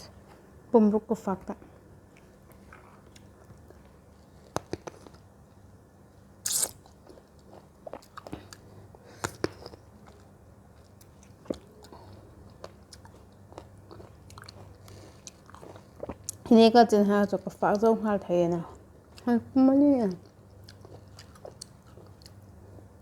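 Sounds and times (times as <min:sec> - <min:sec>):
person chewing crunchy fruit: 0:02.2 - 0:05.3, 0:06.4 - 0:16.5, 0:20.1 - 0:23.0.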